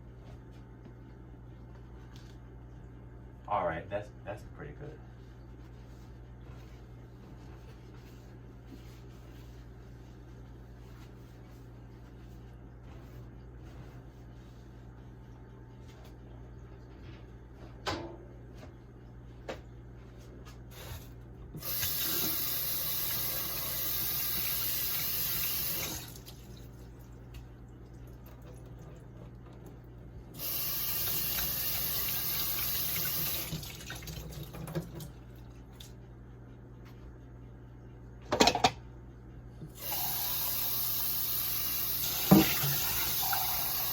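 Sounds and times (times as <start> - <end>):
water tap running into sink: 21.6 - 27.2, 30.4 - 35.2, 39.8 - 43.9.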